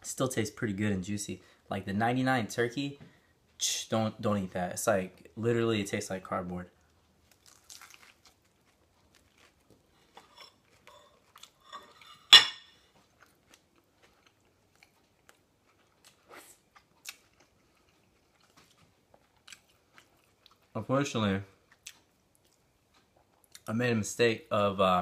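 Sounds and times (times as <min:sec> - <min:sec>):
person chewing crunchy food: 0:06.8 - 0:20.8, 0:21.6 - 0:23.7.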